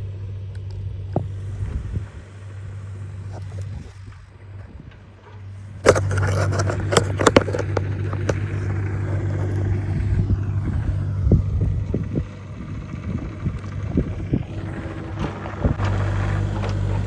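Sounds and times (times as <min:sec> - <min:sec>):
engine running with low hum: 0:00.0 - 0:17.0
clattering scraping knocks: 0:05.2 - 0:10.1, 0:14.5 - 0:17.0.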